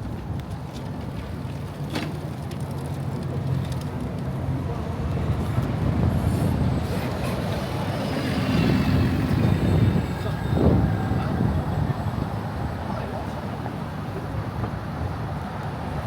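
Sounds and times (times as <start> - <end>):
vehicles passing: 5.7 - 16.0.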